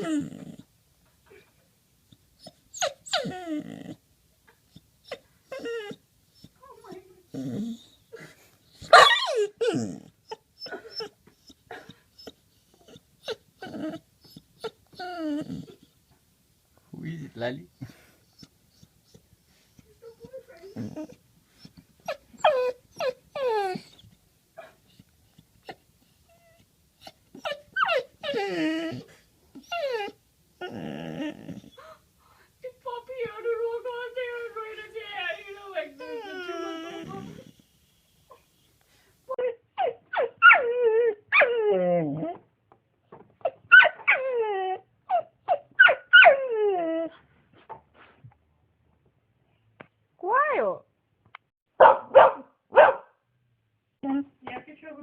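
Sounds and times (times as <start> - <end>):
puppy whining: 0.0 - 0.7, 1.3 - 16.2, 17.1 - 32.1, 34.2 - 42.5, 43.4 - 47.2.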